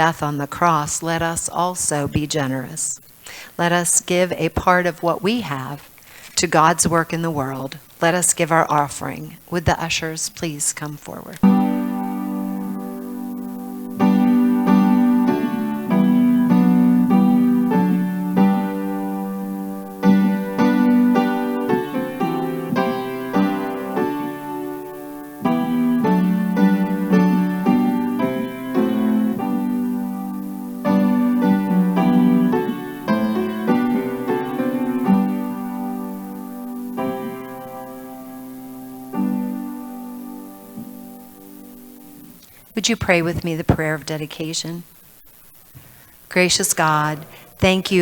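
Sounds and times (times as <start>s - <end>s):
piano playing slow chords: 11.4s - 42.3s.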